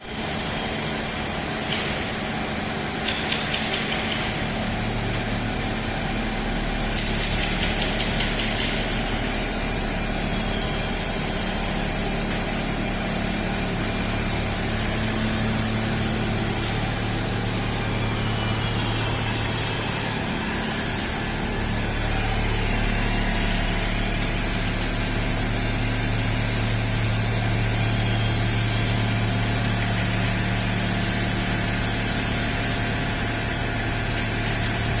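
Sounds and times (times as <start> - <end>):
machine electric hum and hiss: 0.0 - 35.0
fast machine ticking: 6.9 - 9.0.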